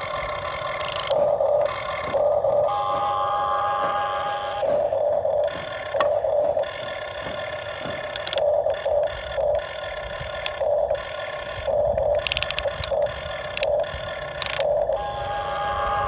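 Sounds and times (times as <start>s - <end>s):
small electric motors whining: 0.0s - 16.0s
sharp clicks: 0.7s - 1.7s, 7.9s - 15.0s.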